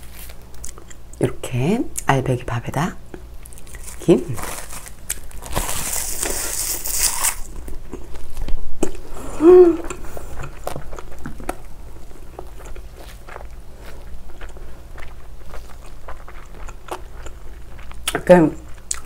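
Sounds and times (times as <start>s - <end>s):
crackly rustling bite: 3.2s - 9.0s
person humming mm: 9.1s - 10.4s
wet chewing clicks: 9.9s - 19.0s.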